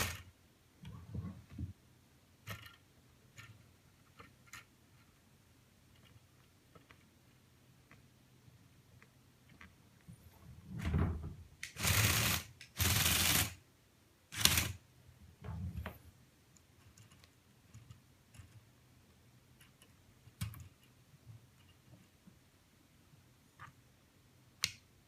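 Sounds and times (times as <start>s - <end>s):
toy bulldozer motors and tracks clattering: 0.0s - 0.3s, 11.7s - 13.6s.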